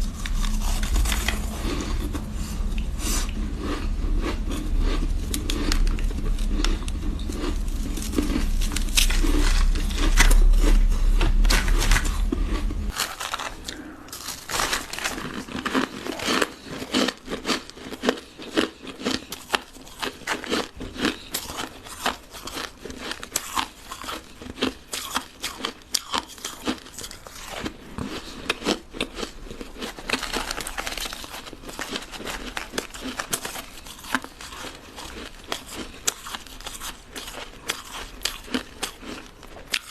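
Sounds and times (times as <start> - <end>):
low hum: 0.0 - 15.7
dense crinkling: 0.0 - 16.8, 29.8 - 35.6
ice being chewed: 0.0 - 39.9.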